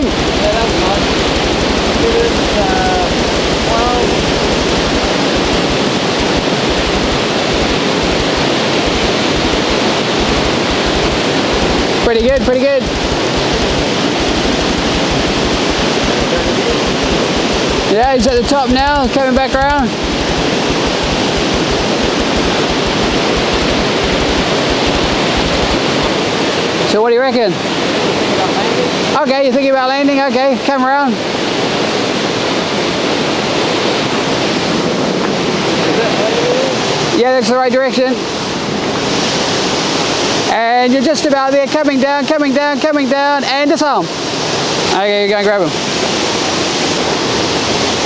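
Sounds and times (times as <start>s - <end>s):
low rumbling: 0.0s - 26.9s
waterfall rushing: 0.0s - 48.0s.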